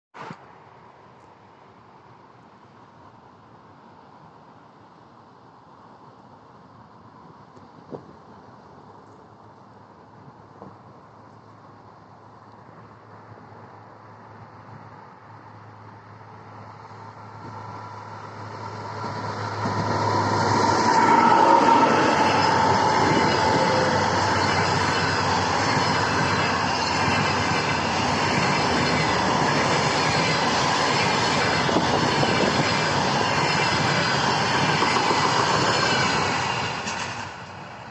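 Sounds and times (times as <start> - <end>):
wheel and rail noise: 5.8 - 37.9
train passing: 8.3 - 37.9
locomotive whine: 16.9 - 37.9.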